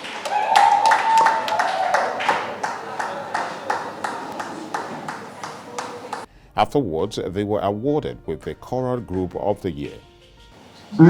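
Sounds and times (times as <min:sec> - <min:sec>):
rhythmic hand-clapping: 0:00.0 - 0:06.3
voices singing or calling: 0:00.3 - 0:06.3.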